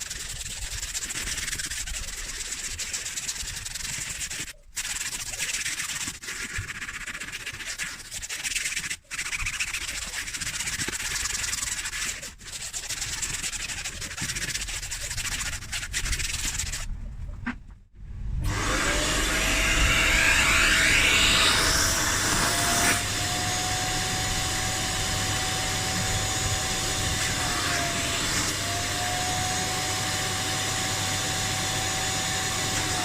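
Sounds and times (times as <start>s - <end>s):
brush scrubbing upholstery: 0.0s - 17.8s, 18.5s - 33.0s.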